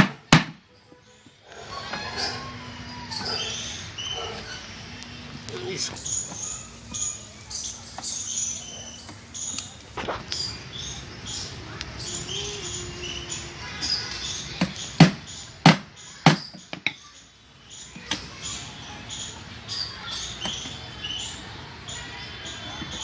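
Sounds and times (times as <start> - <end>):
sharp knocks: 0.0 - 0.6, 14.6 - 17.0
small birds chirping: 0.0 - 23.0.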